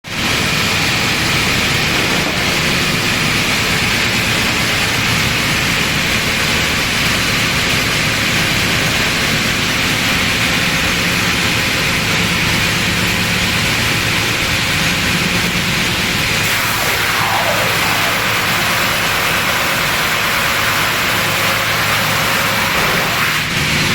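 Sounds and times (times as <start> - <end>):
low machine hum: 0.1 - 23.9
sander rushing noise: 15.2 - 23.9.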